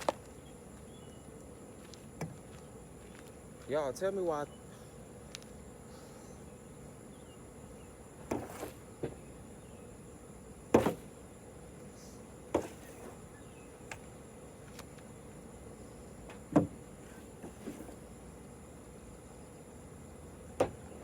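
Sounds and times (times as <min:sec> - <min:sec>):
steady high buzz: 0:00.0 - 0:21.0.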